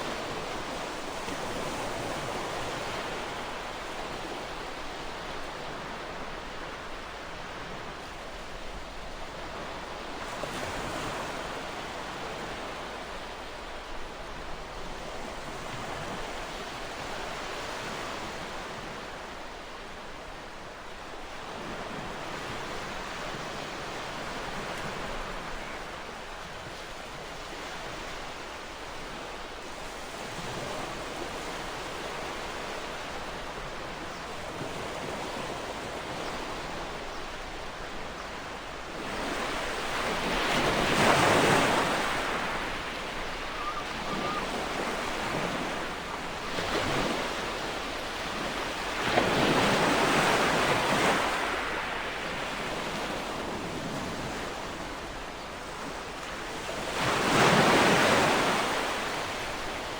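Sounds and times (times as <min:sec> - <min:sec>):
ocean waves crashing: 0:39.6 - 0:53.2.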